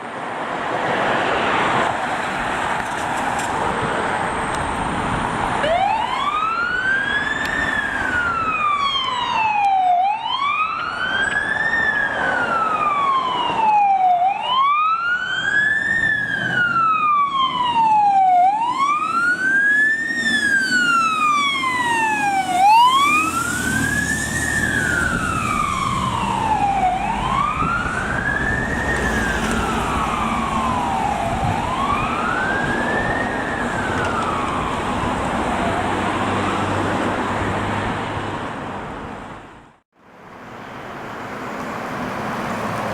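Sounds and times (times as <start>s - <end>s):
engine and road noise: 0.0s - 42.9s
fire truck siren wailing: 4.3s - 37.9s
second siren sweeping fast: 5.6s - 36.8s.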